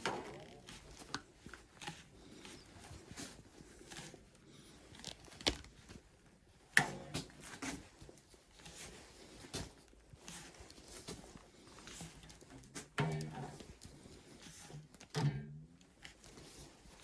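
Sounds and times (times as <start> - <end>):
rustling and tearing: 0.0 - 6.3.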